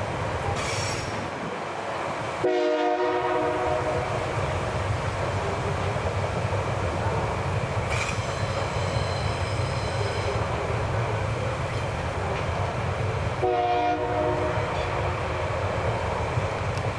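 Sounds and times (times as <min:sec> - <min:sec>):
locomotive horn: 0:02.4 - 0:04.2, 0:13.4 - 0:15.0
high-pitched wheel squeal: 0:07.9 - 0:10.4.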